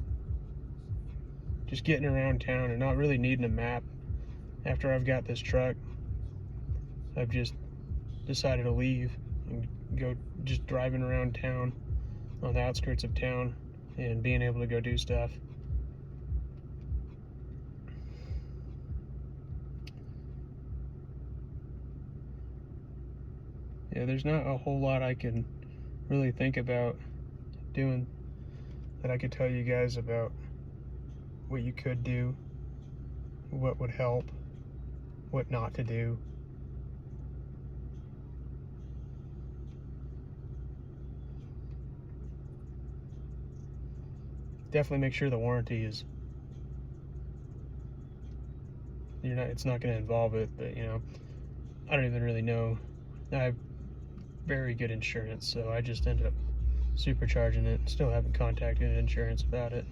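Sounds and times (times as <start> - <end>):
vehicle low rumble: 0.0 - 59.9
faint light ticks: 19.8 - 20.4.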